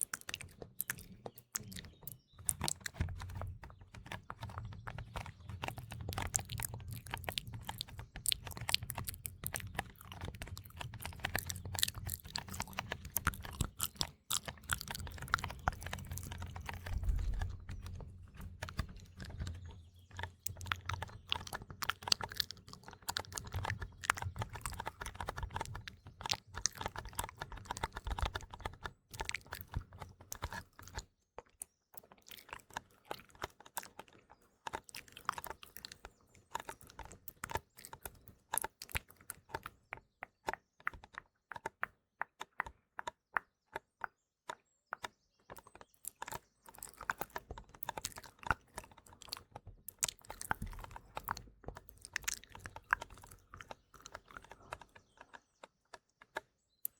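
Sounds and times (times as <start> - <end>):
wet mouth clicks and lip smacks: 0.0 - 31.0, 45.5 - 55.3.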